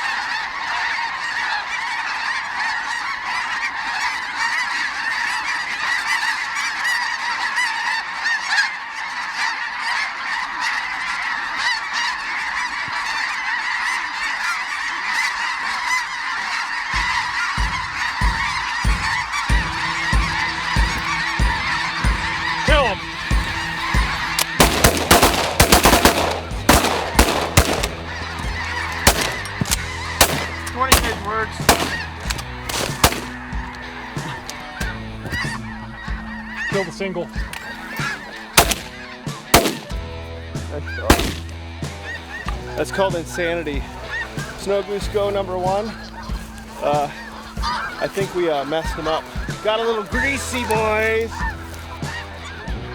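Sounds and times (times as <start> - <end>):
snow geese honking: 0.0 - 52.9
sharp crackles: 22.4 - 36.6, 37.4 - 40.0, 41.1 - 42.9, 43.9 - 52.5
low rumbling: 23.0 - 34.2.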